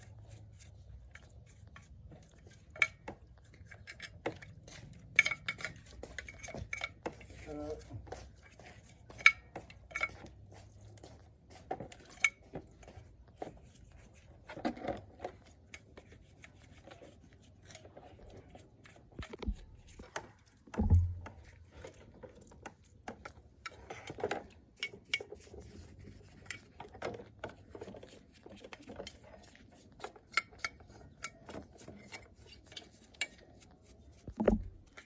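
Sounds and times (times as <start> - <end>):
heavy thump: 20.8 - 21.3.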